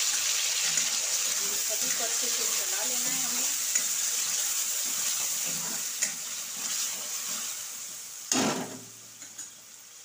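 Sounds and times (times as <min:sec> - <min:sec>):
spatula stirring and scraping: 0:00.0 - 0:07.9
vegetables sizzling in hot oil: 0:00.0 - 0:10.0.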